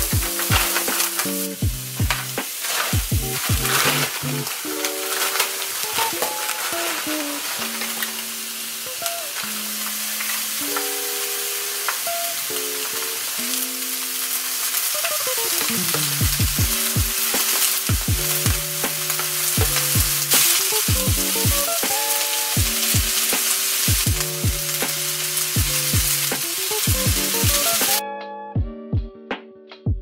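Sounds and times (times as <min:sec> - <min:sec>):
music with deep bass beat: 0:00.0 - 0:04.6, 0:15.8 - 0:22.0, 0:22.6 - 0:28.0, 0:28.6 - 0:30.0
food sizzling in frying pan: 0:00.0 - 0:28.0
spatula turning food: 0:00.0 - 0:28.0.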